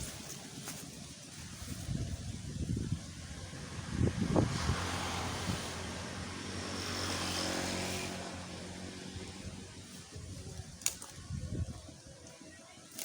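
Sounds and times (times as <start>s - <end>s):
motor engine droning by: 3.3s - 10.3s.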